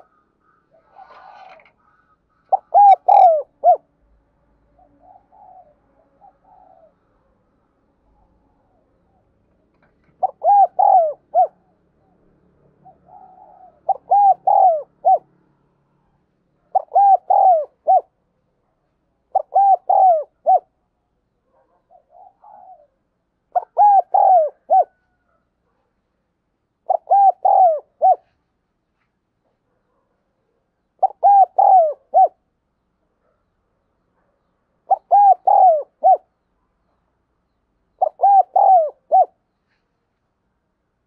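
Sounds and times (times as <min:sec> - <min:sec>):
dove cooing: 0:00.0 - 0:03.9, 0:04.7 - 0:07.3, 0:08.1 - 0:15.4, 0:16.6 - 0:18.2, 0:19.3 - 0:20.8, 0:21.5 - 0:25.5, 0:26.8 - 0:28.4, 0:30.9 - 0:32.4, 0:34.8 - 0:36.3, 0:37.9 - 0:39.4.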